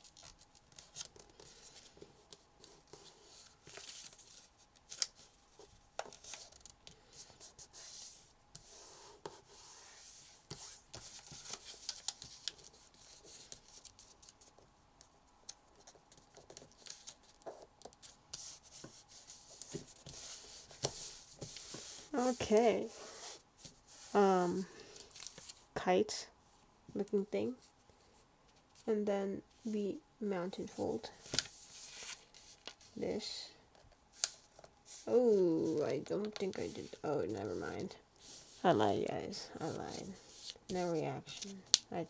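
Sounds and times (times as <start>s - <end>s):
paper crinkling and rustling: 0.0s - 8.0s, 10.3s - 14.7s, 15.4s - 25.7s, 30.7s - 33.0s, 33.8s - 41.9s.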